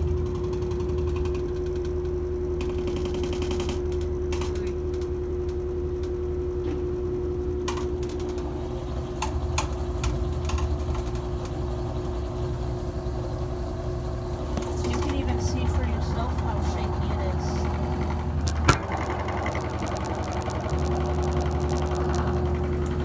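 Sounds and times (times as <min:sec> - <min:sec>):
washing machine spinning: 0:00.0 - 0:23.0
rapid ticking: 0:09.2 - 0:23.0.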